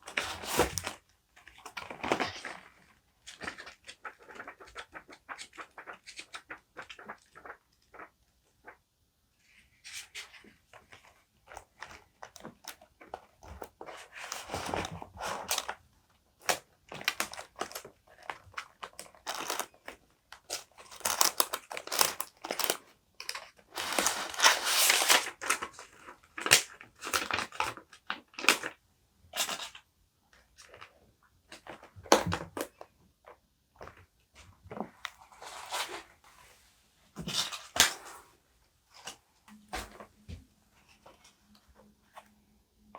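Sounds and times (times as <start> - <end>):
paper rustling and crinkling: 0.0 - 8.1, 9.4 - 15.8, 16.4 - 28.7, 34.7 - 36.6.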